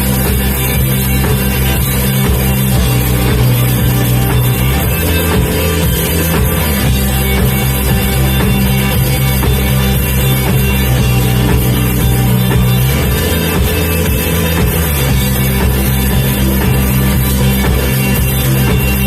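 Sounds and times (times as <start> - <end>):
band playing guitar and drums: 0.0 - 19.0.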